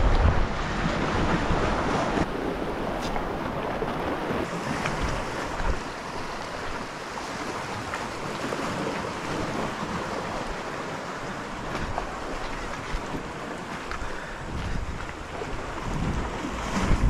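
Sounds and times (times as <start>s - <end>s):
sea water washing around boat: 0.0s - 17.0s
wind on microphone: 0.0s - 17.0s.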